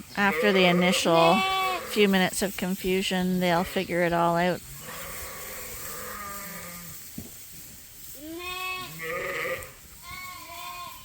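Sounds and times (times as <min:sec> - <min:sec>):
sheep bleating: 0:00.2 - 0:02.1, 0:04.8 - 0:06.9, 0:08.2 - 0:11.0.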